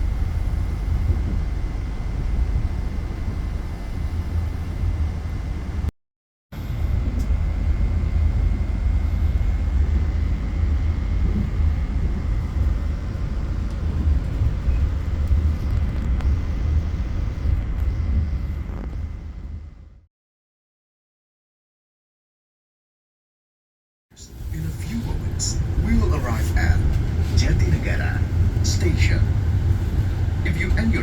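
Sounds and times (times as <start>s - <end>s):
faint steady whine: 6.6s - 20.1s, 24.2s - 31.0s
train wheels rumbling on track: 24.4s - 31.0s.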